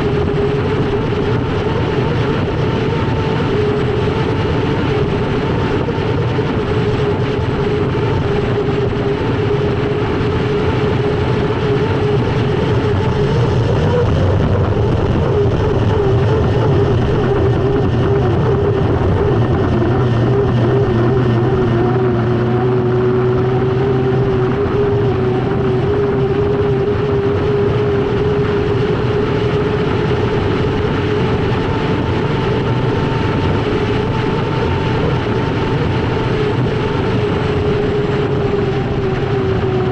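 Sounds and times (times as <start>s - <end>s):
rush of wind and water: 0.0s - 39.9s
turbine engine whine: 0.0s - 39.9s.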